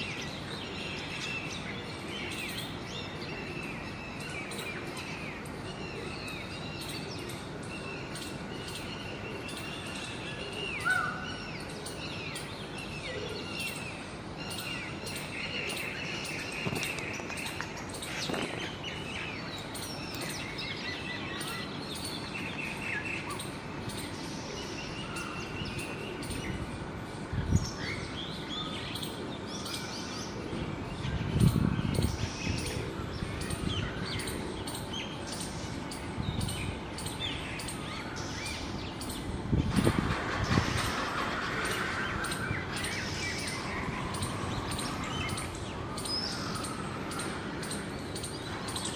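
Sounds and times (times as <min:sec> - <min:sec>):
outdoor background noise: 0:00.0 - 0:48.9
small birds chirping: 0:00.0 - 0:48.9.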